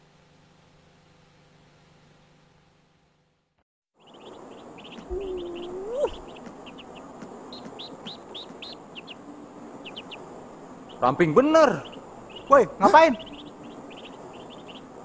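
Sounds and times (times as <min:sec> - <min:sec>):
small birds chirping: 0:04.0 - 0:15.0
low hooting tone: 0:05.0 - 0:06.3.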